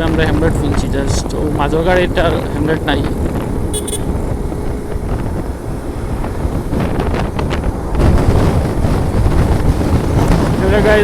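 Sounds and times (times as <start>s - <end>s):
road rumble: 0.0s - 11.0s
wind buffeting microphone: 0.0s - 11.0s
motorcycle engine: 1.2s - 10.5s
high-pitched beep: 3.8s - 4.1s.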